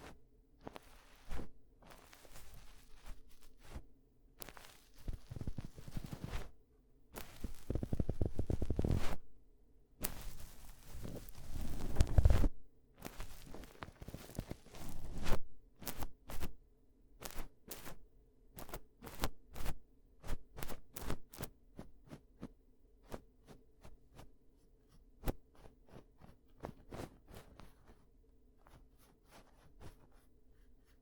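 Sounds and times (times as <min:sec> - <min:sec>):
scratching and rubbing near microphone: 0:00.0 - 0:03.8, 0:04.4 - 0:06.6, 0:07.2 - 0:09.3, 0:10.0 - 0:16.5, 0:25.2 - 0:31.0.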